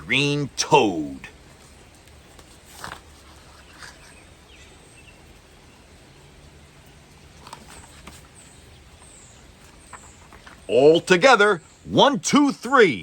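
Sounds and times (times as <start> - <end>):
low background noise: 0.0 - 13.0
faint clicks or rustles: 1.6 - 4.3, 7.1 - 10.7.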